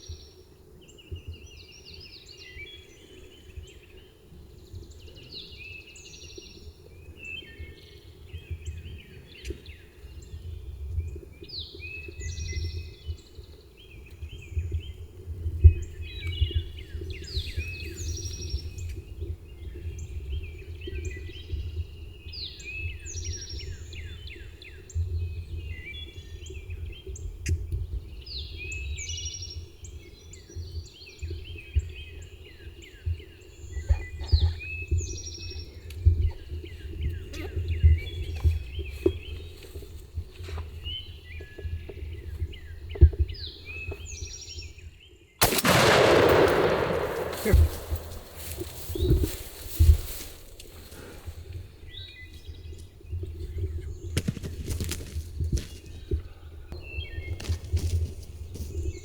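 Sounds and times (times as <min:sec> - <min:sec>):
songbirds singing: 0:00.0 - 0:59.0
sharp thump: 0:46.1 - 0:50.1.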